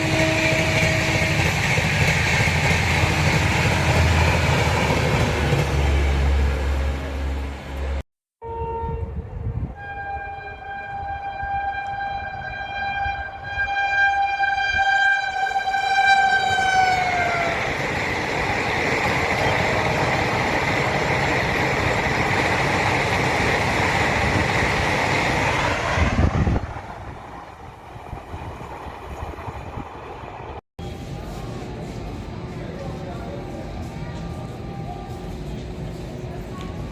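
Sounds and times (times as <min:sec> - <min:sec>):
train horn blasts: 0:00.0 - 0:01.7, 0:08.4 - 0:17.5
train passing at high speed: 0:00.0 - 0:08.0, 0:08.9 - 0:36.9.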